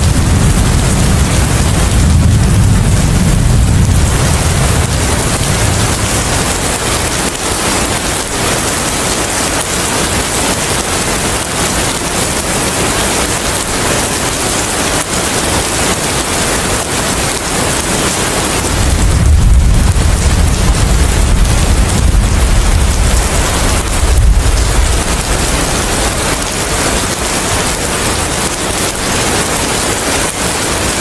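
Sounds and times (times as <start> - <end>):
low rumble: 0.0 - 7.4, 18.7 - 26.6
steady rain hiss: 0.0 - 31.0.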